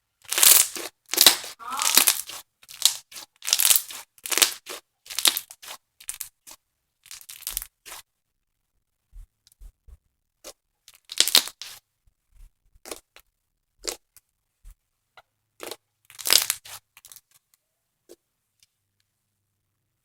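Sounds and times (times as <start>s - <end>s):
foam slime crackling: 0.3s - 6.6s.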